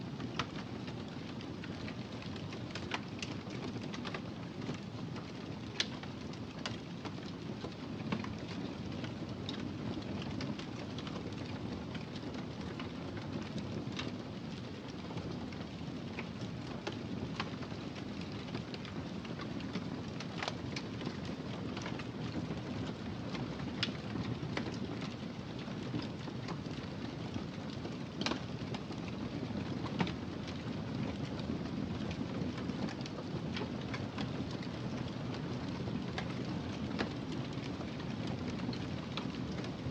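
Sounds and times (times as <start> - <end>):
fire popping and snapping: 0.1 - 39.9
wood fire crackling: 0.1 - 39.9.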